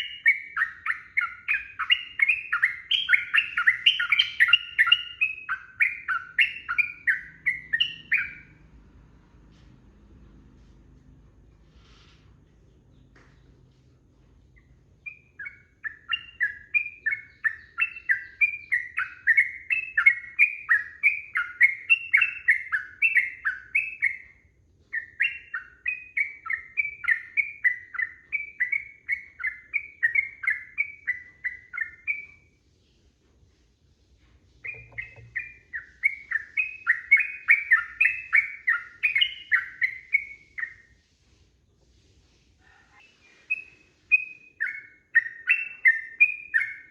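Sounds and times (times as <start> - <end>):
bird singing bubbling notes: 34.6 - 40.7.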